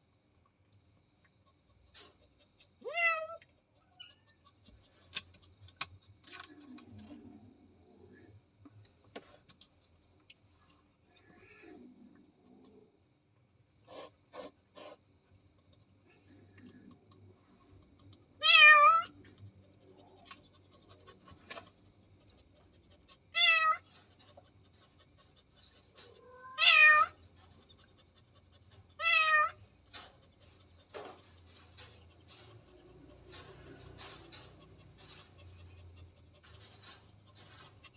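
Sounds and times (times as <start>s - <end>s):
cat meowing: 2.8s - 4.4s, 18.4s - 19.1s, 23.4s - 23.8s, 26.2s - 27.2s, 29.0s - 29.6s.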